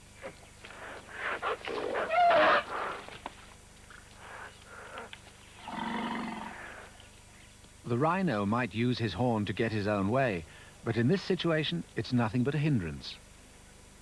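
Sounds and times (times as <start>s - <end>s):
low buzzing animal call: 0.2s - 3.3s, 4.2s - 7.0s
harsh wavering animal call: 0.8s - 3.1s, 4.2s - 6.9s.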